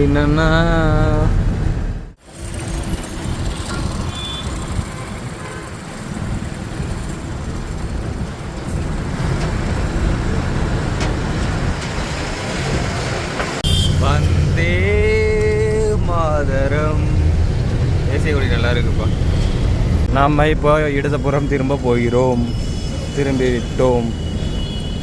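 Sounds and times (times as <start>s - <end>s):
truck engine running: 0.0s - 21.6s
short high beep: 3.5s - 4.6s.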